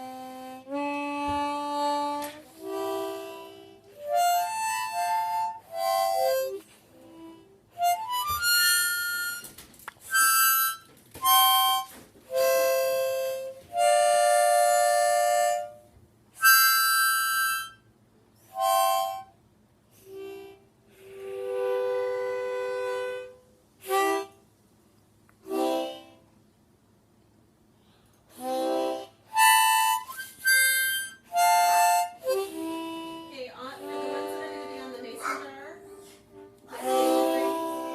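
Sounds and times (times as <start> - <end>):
harmonica notes and chords: 0.0 - 24.5, 25.3 - 26.5, 27.8 - 37.9.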